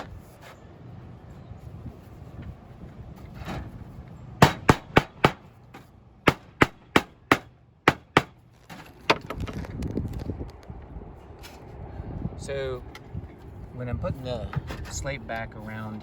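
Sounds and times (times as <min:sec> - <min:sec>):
hammer strikes: 0:04.4 - 0:05.5, 0:06.2 - 0:08.4.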